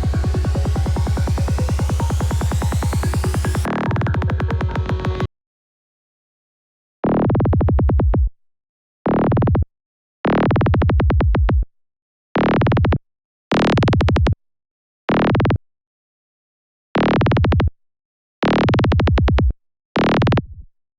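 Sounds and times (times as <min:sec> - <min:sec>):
pulsing electronic kick and bass: 0:00.0 - 0:05.3.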